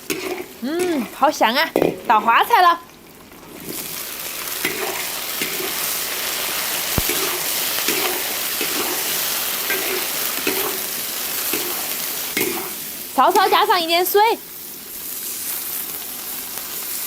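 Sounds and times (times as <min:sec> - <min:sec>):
spatula scraping the pan: 0:00.0 - 0:02.3, 0:03.4 - 0:13.8
food sizzling in hot oil: 0:00.0 - 0:17.0.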